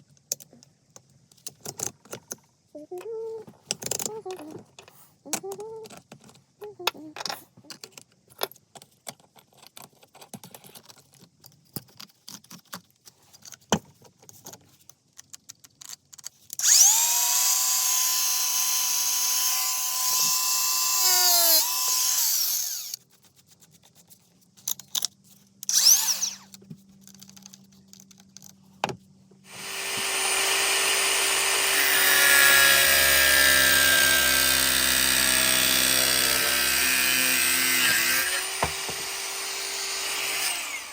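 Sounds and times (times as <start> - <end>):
angle grinder whining: 16.6 - 23.0, 25.7 - 26.5, 29.5 - 40.9.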